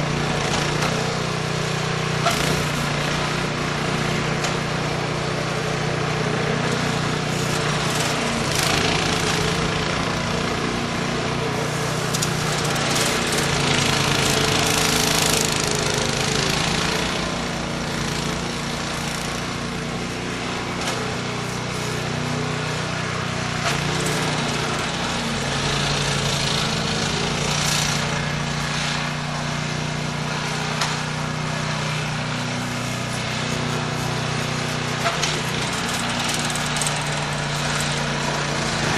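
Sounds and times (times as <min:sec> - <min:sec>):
snow-clearing machine engine: 0:00.0 - 0:38.9.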